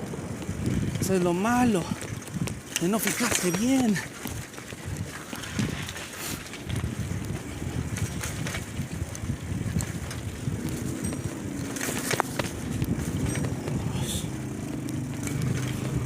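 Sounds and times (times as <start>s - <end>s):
bicycle tyres rumbling on road: 0.0s - 16.0s
wind on microphone: 0.0s - 16.0s
small clicks and rattles: 0.2s - 16.0s.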